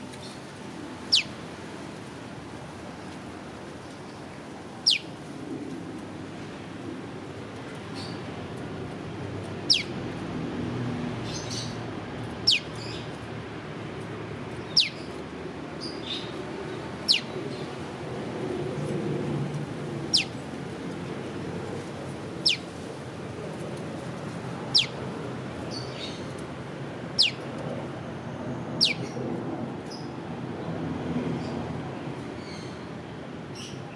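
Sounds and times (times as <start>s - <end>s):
higher bird chirps: 4.9s - 5.1s, 9.7s - 9.9s, 12.5s - 12.7s, 14.7s - 15.0s, 17.1s - 17.3s, 22.4s - 22.6s, 24.7s - 24.9s, 27.2s - 27.4s.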